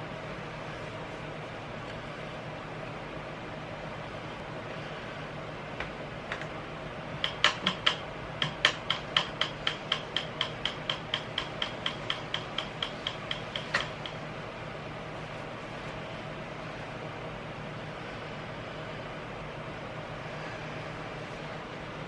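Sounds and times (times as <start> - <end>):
sharp ratchet-like clicks: 7.2 - 14.2.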